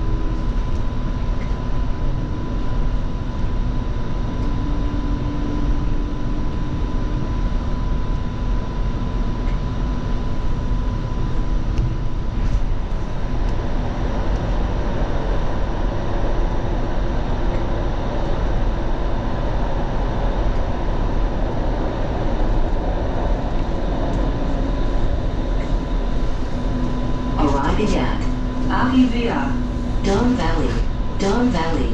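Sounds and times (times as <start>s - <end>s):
steady high hum: 0.0s - 31.9s
wheels rumbling on rail: 19.1s - 31.2s.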